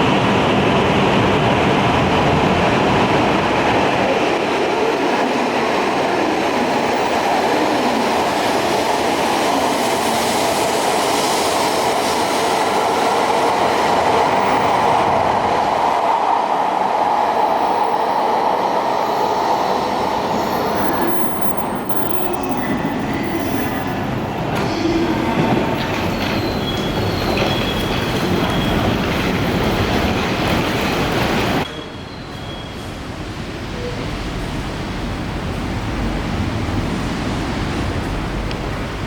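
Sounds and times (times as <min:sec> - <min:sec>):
train wheels on track: 0:00.0 - 0:39.0
train wheel squeal: 0:19.0 - 0:34.2.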